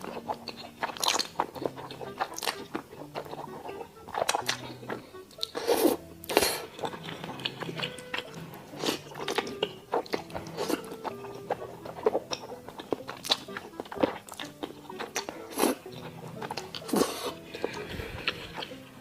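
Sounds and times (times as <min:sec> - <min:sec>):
wet clicks and crunches: 0:00.0 - 0:05.6, 0:09.0 - 0:16.9
lip smacks: 0:00.0 - 0:19.0
person chewing and biting: 0:00.0 - 0:19.0.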